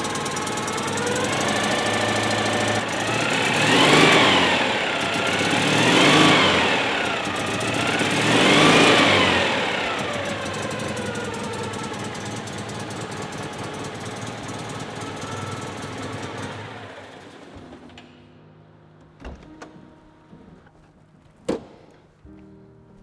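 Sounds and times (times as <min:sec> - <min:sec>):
car engine running: 0:00.0 - 0:17.5
sharp knocks: 0:21.5 - 0:22.1.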